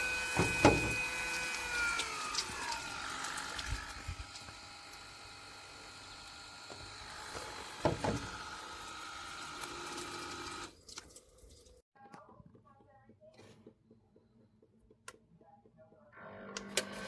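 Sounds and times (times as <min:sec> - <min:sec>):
water spraying: 0:00.0 - 0:06.6, 0:07.8 - 0:11.8
pump whining: 0:00.0 - 0:10.8.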